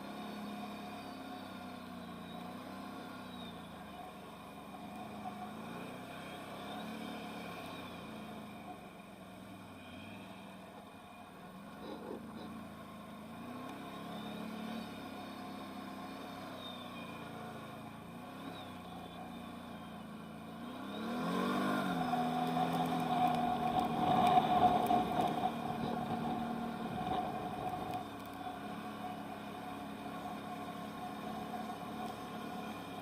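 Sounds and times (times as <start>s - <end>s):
atv engine revving: 11.6s - 33.0s.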